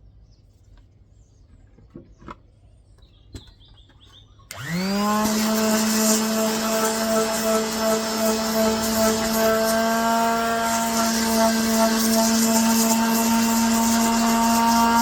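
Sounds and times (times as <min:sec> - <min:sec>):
electric sander motor humming: 0:04.5 - 0:15.0.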